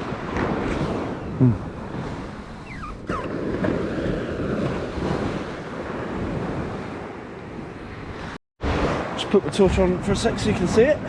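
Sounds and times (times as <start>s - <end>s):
short falling squeaks: 2.6s - 3.4s
surf washing on beach: 3.3s - 11.0s.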